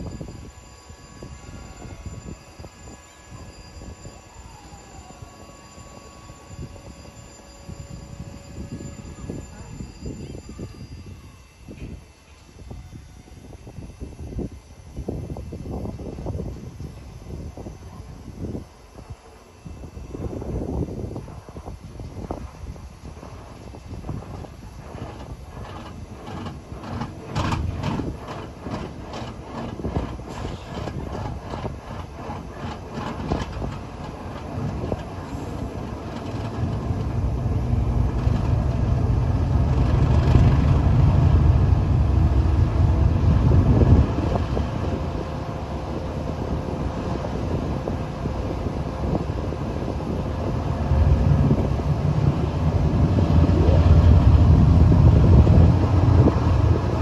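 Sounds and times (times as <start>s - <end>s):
diesel locomotive rumble: 20.1s - 57.0s
train wheels clicking over rails: 24.2s - 41.1s.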